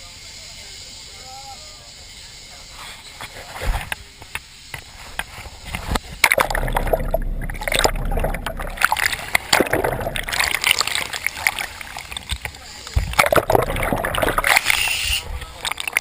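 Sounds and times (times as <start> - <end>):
water splashing and sloshing: 4.8 - 16.0.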